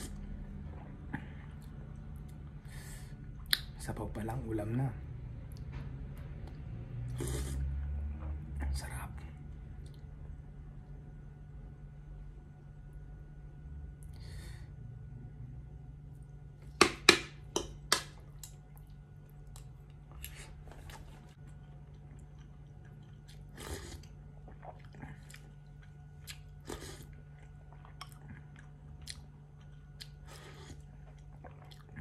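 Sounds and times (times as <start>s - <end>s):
man chewing food: 16.0s - 32.0s.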